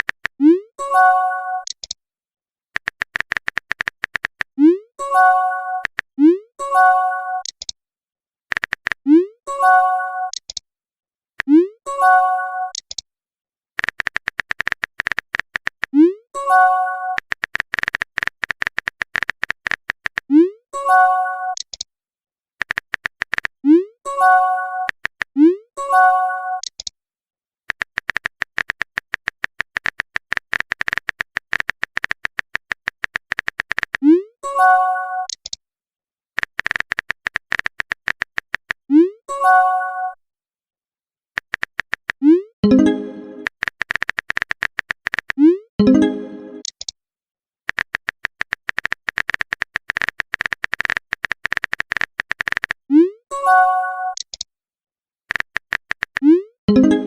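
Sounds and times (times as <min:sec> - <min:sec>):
phone keyboard typing clicks: 0:00.0 - 0:00.4, 0:01.6 - 0:02.0, 0:02.8 - 0:04.6, 0:05.8 - 0:06.1, 0:07.4 - 0:07.8, 0:08.5 - 0:09.1, 0:10.3 - 0:10.6, 0:12.7 - 0:13.0, 0:13.8 - 0:16.0, 0:17.1 - 0:20.4, 0:21.5 - 0:21.9, 0:22.6 - 0:23.6, 0:24.8 - 0:25.4, 0:26.6 - 0:26.9, 0:27.7 - 0:34.0, 0:35.2 - 0:35.6, 0:36.4 - 0:38.9, 0:41.4 - 0:46.9, 0:47.7 - 0:52.9, 0:54.1 - 0:54.5, 0:55.3 - 0:57.0
electronic message chime: 0:42.6 - 0:43.5, 0:45.8 - 0:46.6, 0:56.7 - 0:57.0.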